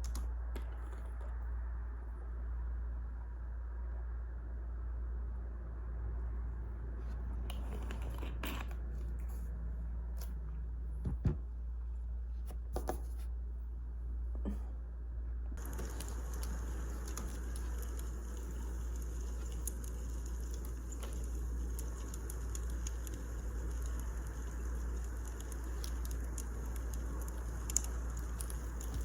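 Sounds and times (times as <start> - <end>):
steady low hum: 0.0 - 29.0
wood fire crackling and popping: 15.6 - 29.0.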